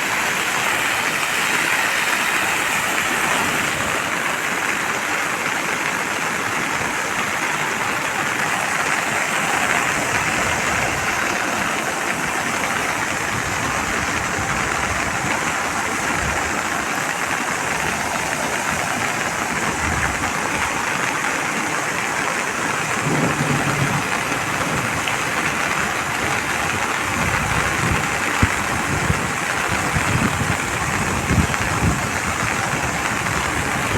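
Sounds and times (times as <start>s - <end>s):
water rushing: 0.0s - 33.9s.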